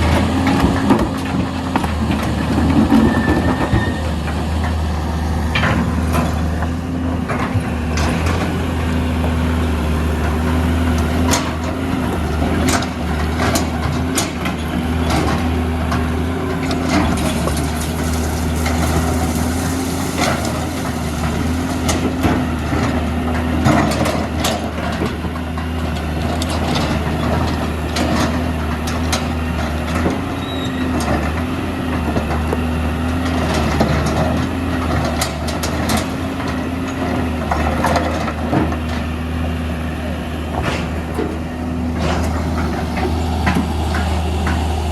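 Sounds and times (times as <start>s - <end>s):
excavator diesel engine: 0.0s - 44.9s
hydraulic whine: 2.5s - 4.4s
knocks and clatter of rocks: 16.8s - 22.5s.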